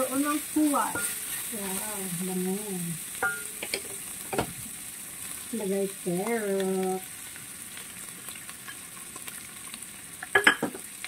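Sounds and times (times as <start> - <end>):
meat sizzling in a pan: 0.0 - 11.0
wooden spatula stirring: 0.8 - 2.0.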